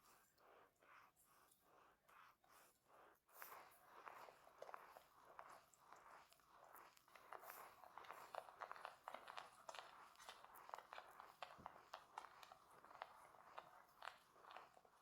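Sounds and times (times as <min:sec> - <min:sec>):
faint clicks and crackles: 0:03.4 - 0:15.0.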